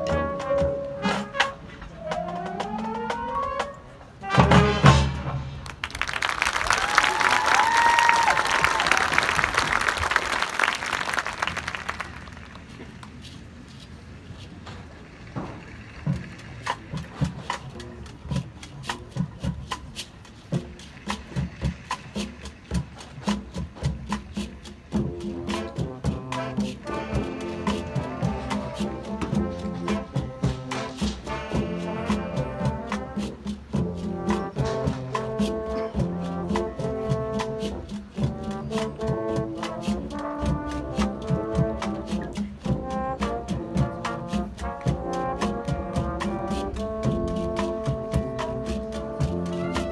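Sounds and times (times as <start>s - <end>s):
brass section holding chords: 0.0s - 5.6s, 25.5s - 33.2s, 38.4s - 49.9s
drum hits: 4.3s - 5.9s.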